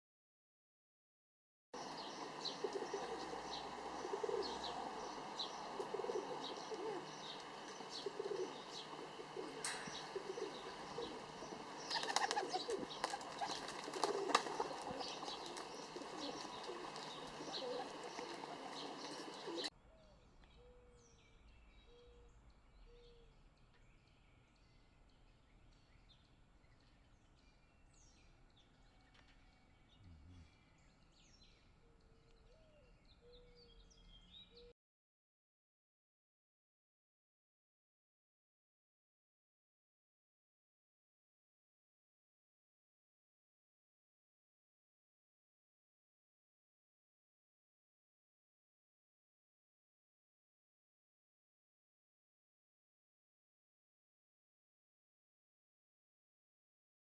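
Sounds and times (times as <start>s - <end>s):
pigeons cooing: 1.8s - 23.4s, 29.1s - 34.7s
small birds chirping: 1.8s - 34.7s
wing flapping: 5.8s - 19.7s.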